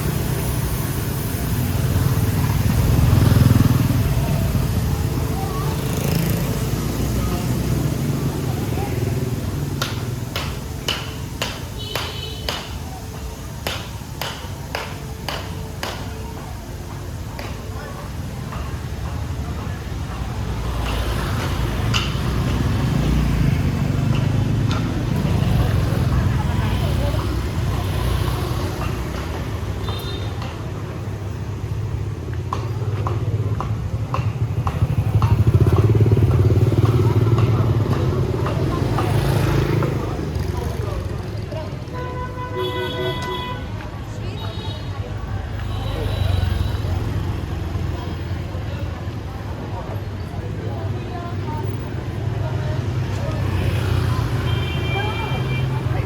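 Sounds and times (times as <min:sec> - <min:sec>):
motorbike engine running: 0:00.0 - 0:10.6, 0:31.4 - 0:41.8
street noise: 0:00.0 - 0:56.0
sharp taps: 0:09.6 - 0:16.4.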